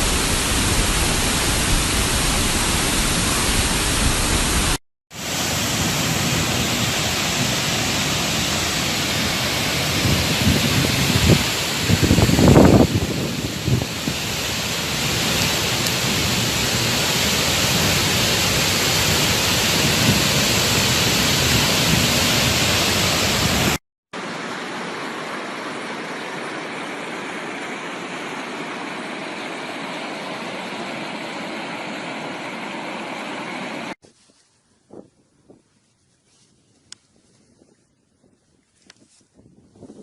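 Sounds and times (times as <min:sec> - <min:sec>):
rushing water: 0:00.0 - 0:29.9.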